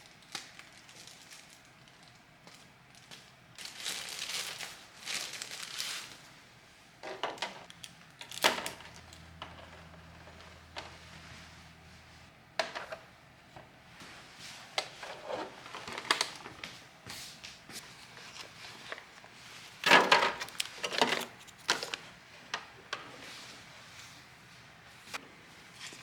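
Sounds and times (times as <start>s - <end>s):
rustling scrape: 9.5s - 12.3s, 14.0s - 16.1s.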